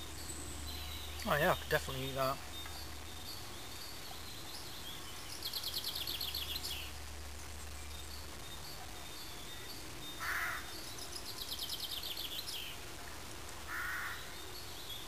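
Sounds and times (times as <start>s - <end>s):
songbird fast trill: 0.1s - 6.9s.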